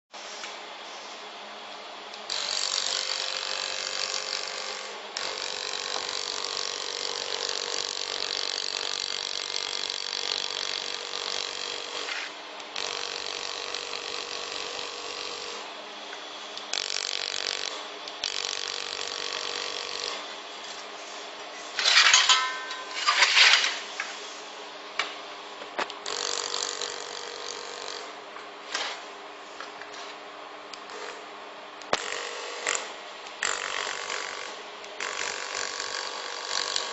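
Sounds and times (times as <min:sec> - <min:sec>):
loud welder sputters: 0:02.2 - 0:15.7, 0:16.6 - 0:20.4, 0:21.7 - 0:24.1, 0:25.8 - 0:28.2, 0:31.9 - 0:36.9
laser welder hissing and crackling: 0:02.2 - 0:22.3, 0:25.8 - 0:28.1, 0:31.8 - 0:32.8, 0:33.4 - 0:36.9
steady hum: 0:11.9 - 0:34.1.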